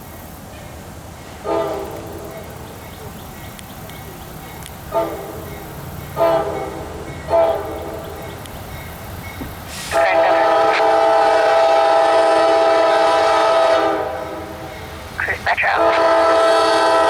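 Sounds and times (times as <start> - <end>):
locomotive air horn blasts: 1.4 - 2.0, 4.9 - 5.4, 6.2 - 8.0, 9.7 - 14.6, 15.6 - 17.0.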